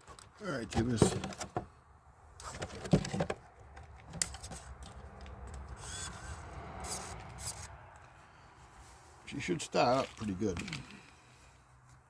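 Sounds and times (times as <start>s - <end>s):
handling clicks and knocks: 0.0s - 1.8s, 2.4s - 5.7s, 10.0s - 11.2s.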